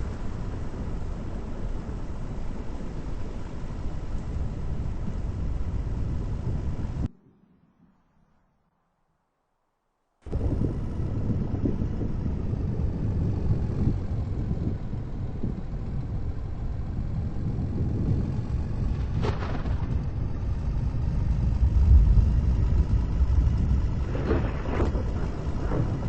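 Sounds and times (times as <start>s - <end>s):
car driving rumble: 10.3s - 26.0s.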